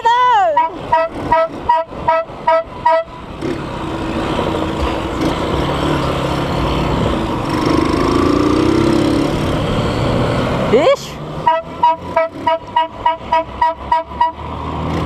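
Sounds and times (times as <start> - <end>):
engine rumble: 0.0 - 15.0
street noise: 0.0 - 15.0
two-note vehicle horn beeping: 0.9 - 3.2, 11.4 - 14.4.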